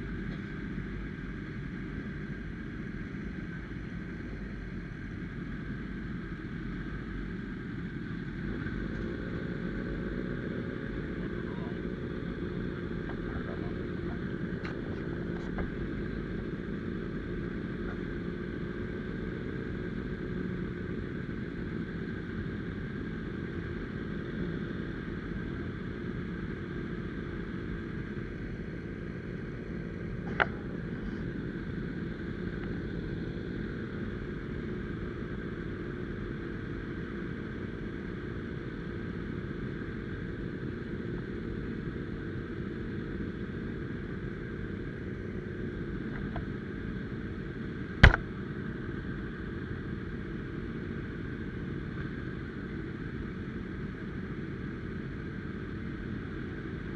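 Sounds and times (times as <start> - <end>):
vehicle running rumble: 0.0 - 36.4, 43.9 - 48.4
sharp click: 48.0 - 48.2.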